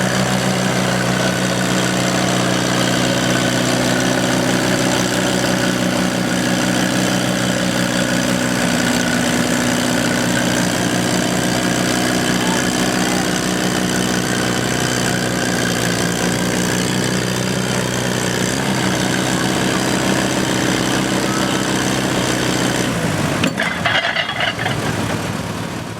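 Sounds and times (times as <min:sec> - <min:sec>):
tractor engine running: 0:00.0 - 0:25.9.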